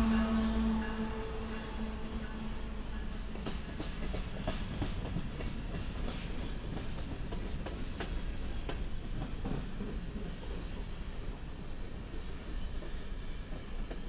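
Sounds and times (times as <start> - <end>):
steel wheels rumbling on rails: 0.0 - 14.0.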